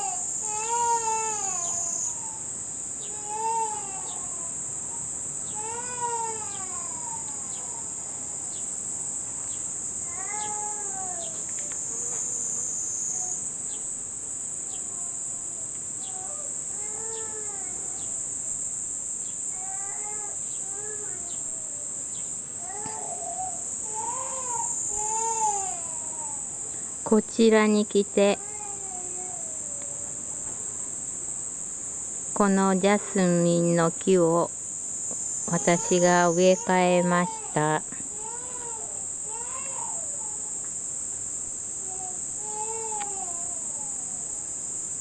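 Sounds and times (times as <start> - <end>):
cicadas buzzing: 0.0 - 45.0
infant crying: 3.1 - 5.0, 10.1 - 11.3, 16.1 - 18.0, 19.6 - 21.8, 22.6 - 26.6, 35.5 - 40.5, 41.9 - 44.3.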